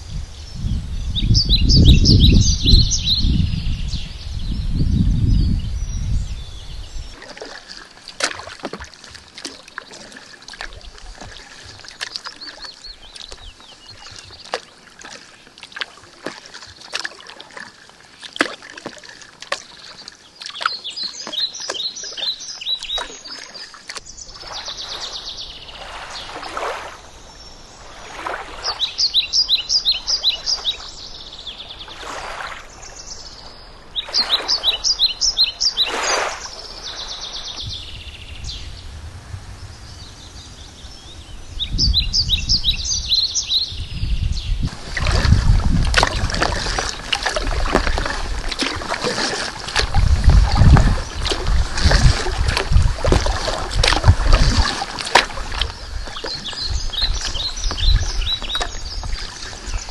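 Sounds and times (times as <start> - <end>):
wind rumble on microphone: 0.0 - 7.2, 32.7 - 59.9
songbird singing: 0.0 - 59.9
paddle strokes swishing water: 6.8 - 43.8, 44.6 - 59.9.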